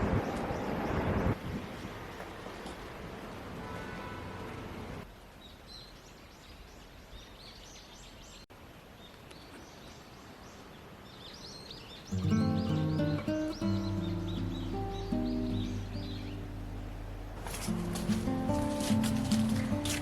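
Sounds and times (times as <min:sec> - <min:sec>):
birds chirping: 0:05.4 - 0:20.0
gentle instrumental music: 0:12.1 - 0:20.0.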